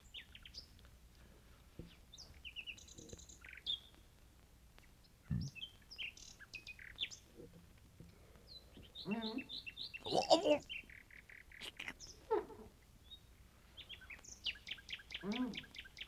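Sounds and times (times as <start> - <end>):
small birds chirping: 1.5 - 4.1, 4.8 - 7.4, 8.2 - 12.3.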